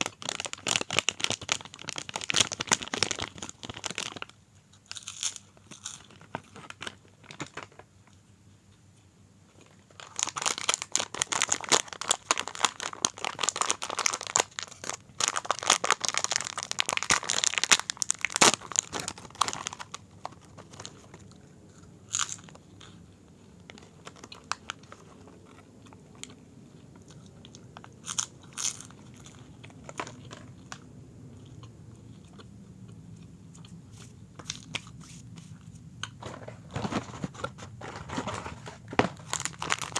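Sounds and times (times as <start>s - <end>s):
crunching and chewing snack: 0.0s - 7.9s, 9.6s - 39.9s.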